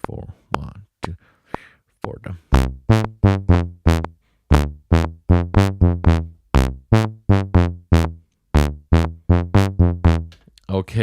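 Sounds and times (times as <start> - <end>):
plucky synth notes: 2.5 - 10.4.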